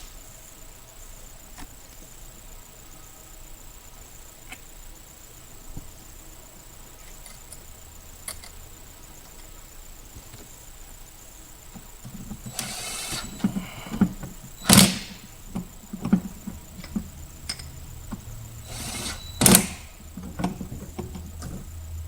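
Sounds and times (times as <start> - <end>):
knocks and clicks of tools: 11.7 - 21.7
loud sharp clunks: 18.7 - 20.8.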